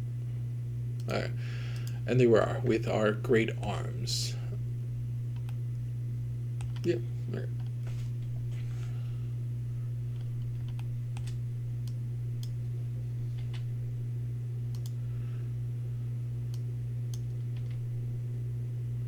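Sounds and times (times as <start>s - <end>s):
steady low hum: 0.0s - 19.0s
keyboard and mouse clicks: 6.6s - 6.9s.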